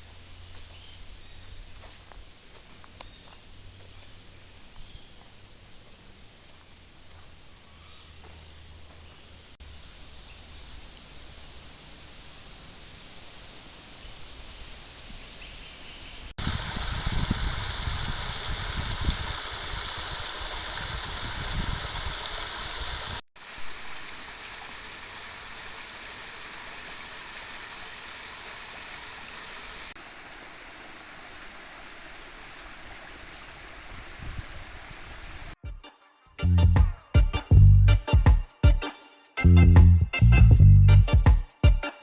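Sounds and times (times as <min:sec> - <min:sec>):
creek water rushing: 0:23.4 - 0:34.2
low rumble: 0:36.5 - 0:36.8, 0:39.5 - 0:41.2.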